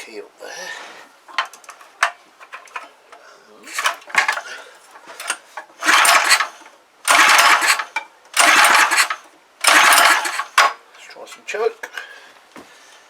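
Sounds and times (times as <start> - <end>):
recoil starter cranking engine: 3.7 - 4.5, 5.2 - 10.8.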